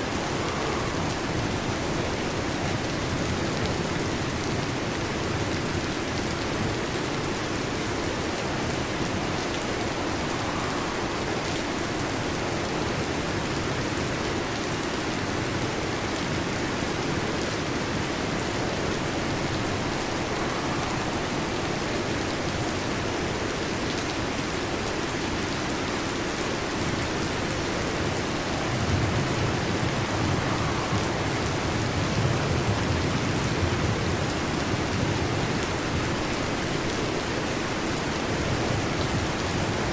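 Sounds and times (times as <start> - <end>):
thunder rumbling: 0.0 - 4.3, 17.0 - 23.7, 27.2 - 36.2
heavy rain on metal roof: 0.0 - 39.9.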